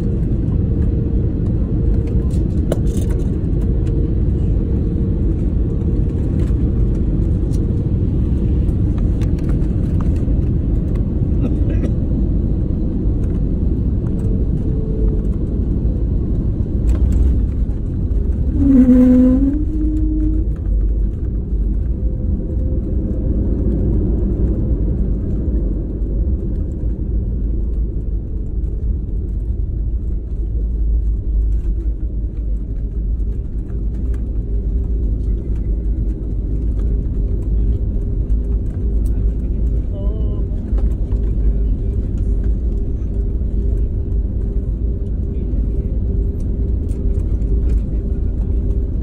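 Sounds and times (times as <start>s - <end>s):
airliner cabin engine rumble: 0.0s - 49.0s
brief pitched tone: 18.5s - 20.4s.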